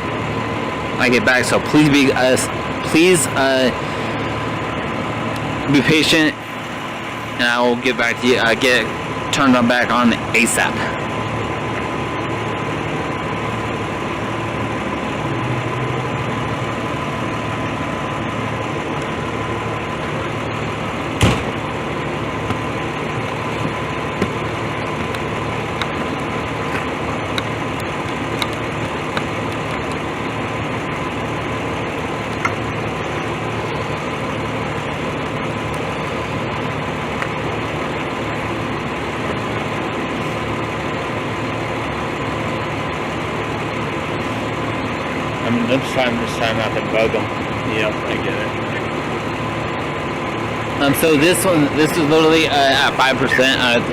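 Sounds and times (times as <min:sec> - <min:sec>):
thin steady whine: 0:00.0 - 0:53.9
vehicle engine idling: 0:00.0 - 0:53.9
sharp knock: 0:21.2 - 0:21.5.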